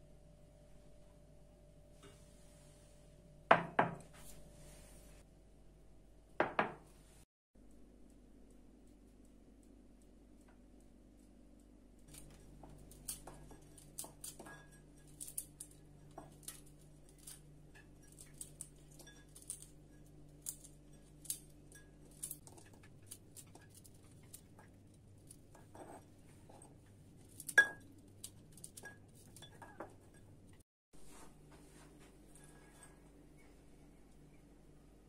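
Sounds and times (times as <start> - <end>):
utensils clinking on glass and dishes: 12.1 - 30.6.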